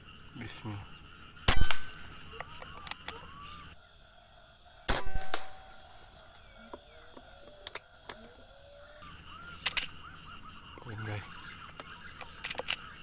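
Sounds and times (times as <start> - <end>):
faint bird chirps: 0.0 - 4.8, 5.4 - 13.0
air rifle shot: 1.5 - 2.1
small clicks: 1.5 - 3.2, 9.6 - 10.0, 11.8 - 13.0.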